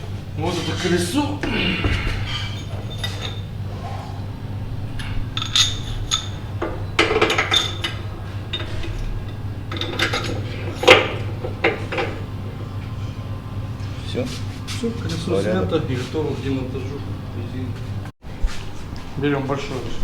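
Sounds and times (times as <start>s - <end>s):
steady low hum: 0.0s - 20.0s
metal tools clinking and knocking: 1.9s - 3.6s, 5.0s - 12.3s.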